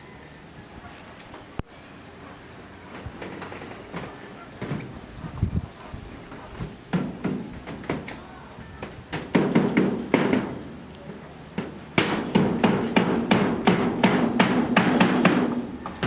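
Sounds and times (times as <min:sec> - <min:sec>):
hammer blows: 0:11.6 - 0:16.0.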